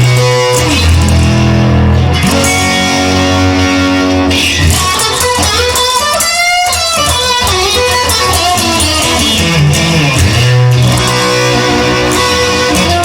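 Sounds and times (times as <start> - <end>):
bass line: 0.0 - 5.0, 9.0 - 13.0
electric guitar lead line: 0.0 - 13.0
strummed guitar: 0.0 - 13.0.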